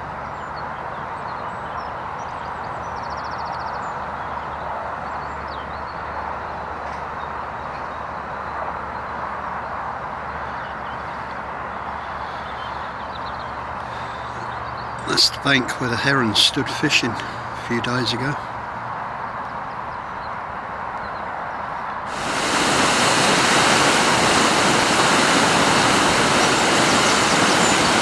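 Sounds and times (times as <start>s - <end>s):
water rushing over a weir: 22.1s - 28.0s.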